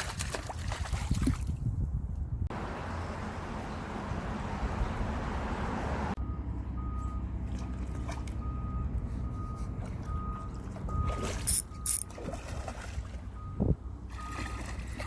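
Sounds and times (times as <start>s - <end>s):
vehicle engine rumbling: 2.2s - 15.0s
reversing alarm beeps: 6.2s - 7.8s, 8.4s - 12.1s, 13.4s - 14.8s.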